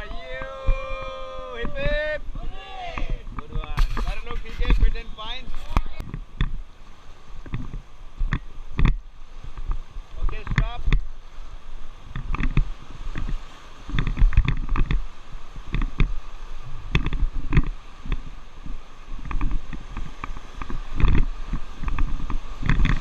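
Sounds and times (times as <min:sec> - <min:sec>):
low rumbling thuds: 0:00.0 - 0:11.2
water splashing around raft: 0:00.0 - 0:23.0.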